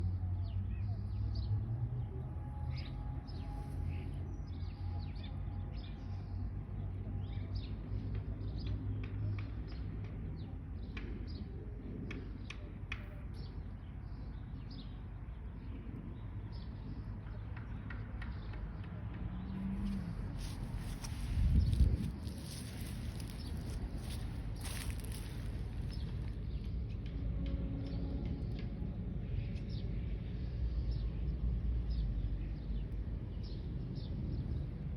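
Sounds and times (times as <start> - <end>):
songbirds chirping: 0.0 - 34.9
steady low rumble: 18.9 - 34.9.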